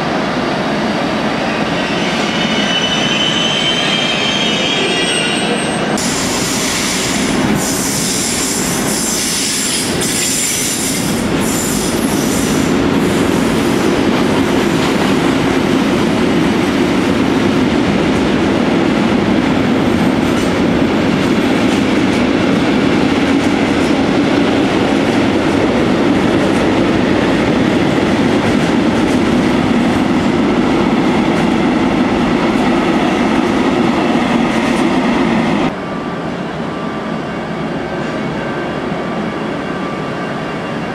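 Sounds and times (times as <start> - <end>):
train wheel squeal: 1.4 - 12.7.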